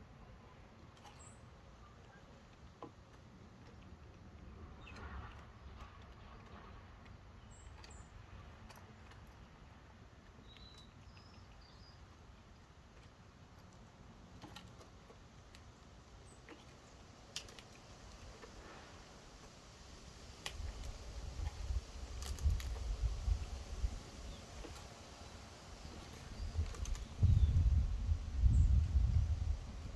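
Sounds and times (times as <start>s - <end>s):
songbirds chirping: 0.0s - 29.9s
light clicks and taps: 0.8s - 18.8s, 25.8s - 27.5s.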